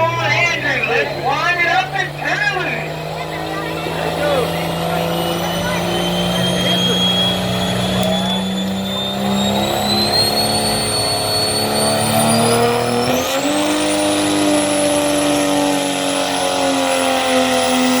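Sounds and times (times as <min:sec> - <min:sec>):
truck engine at high revs: 0:00.0 - 0:18.0
high whistle: 0:04.9 - 0:13.0.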